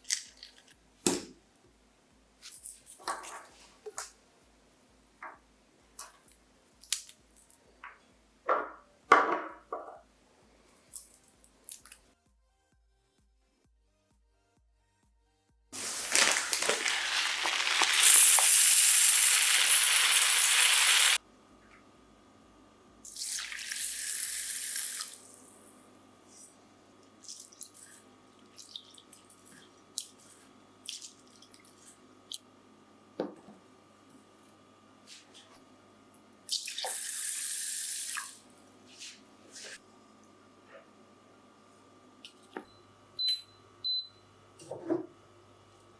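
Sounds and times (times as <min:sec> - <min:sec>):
water running from kitchen tap: 0:15.8 - 0:21.2, 0:36.5 - 0:38.4.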